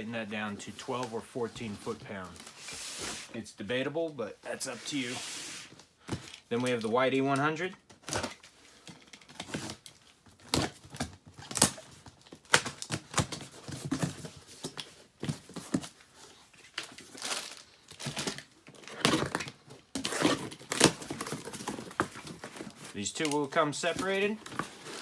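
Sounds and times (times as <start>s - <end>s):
rustling: 0.0s - 3.4s, 13.5s - 25.0s.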